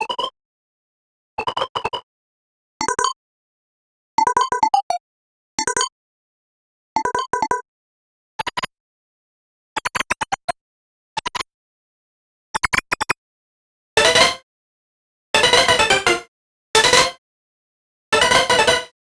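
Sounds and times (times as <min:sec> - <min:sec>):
synthesizer clicky staccato notes: 0:14.0 - 0:14.4, 0:15.4 - 0:17.2, 0:18.2 - 0:19.0.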